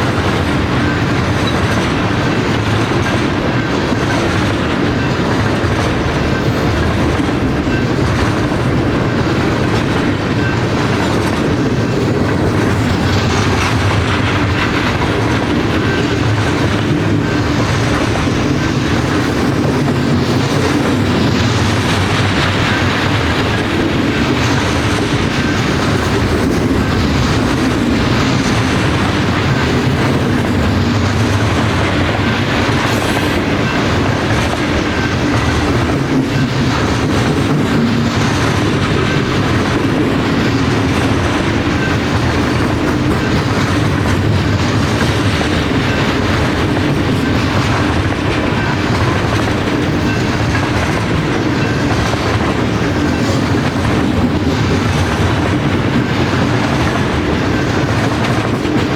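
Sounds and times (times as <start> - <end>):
train cars rolling past: 0.0 - 58.9
wheels clicking over rail joints: 0.0 - 58.9.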